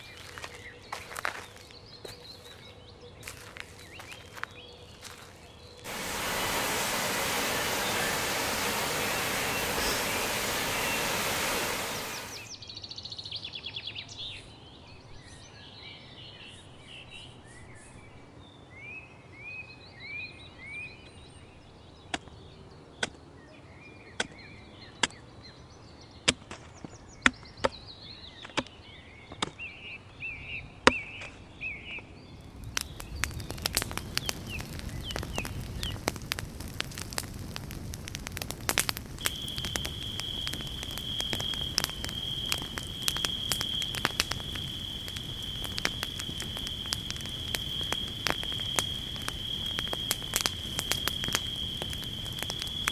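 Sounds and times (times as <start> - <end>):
campfire crackling: 0.0 - 12.5, 32.4 - 52.9
small birds chirping and trilling: 0.0 - 12.5
sharp snaps: 5.9 - 12.5, 32.5 - 52.9
steady high whistle: 5.9 - 12.5, 39.2 - 52.9.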